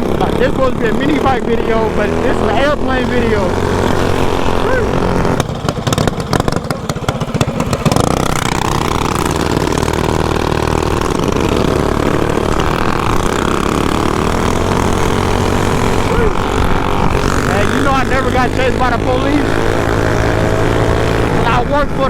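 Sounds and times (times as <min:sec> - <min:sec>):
small engine chugging and revving: 0:00.0 - 0:22.0.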